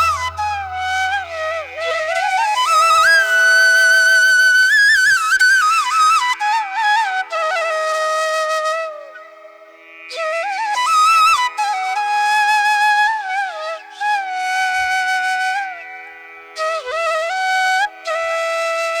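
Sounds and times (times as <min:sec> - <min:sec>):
steady drone: 0:00.0 - 0:02.7
flute melody: 0:00.0 - 0:09.2.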